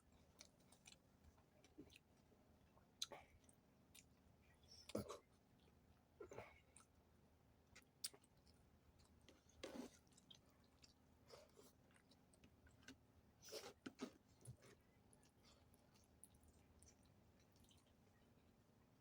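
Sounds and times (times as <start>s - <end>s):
person chewing: 7.8s - 18.0s.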